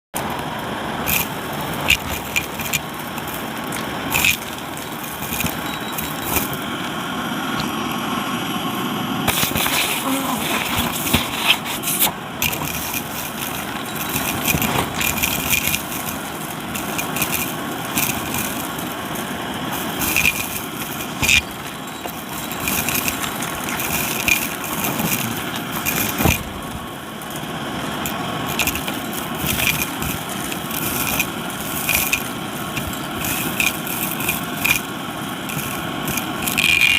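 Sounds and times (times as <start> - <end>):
debris crackling in vacuum: 0.2 - 8.0, 8.6 - 36.9
vacuum cleaner suction: 9.3 - 27.0.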